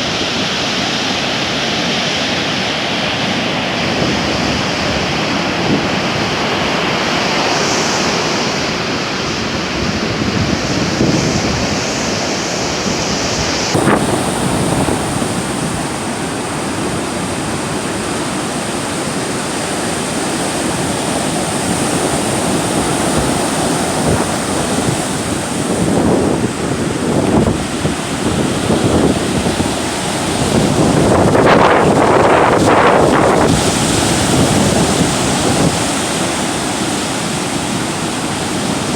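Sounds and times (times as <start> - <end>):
heavy surf breaking: 0.0 - 38.9
wind buffeting microphone: 3.3 - 38.9.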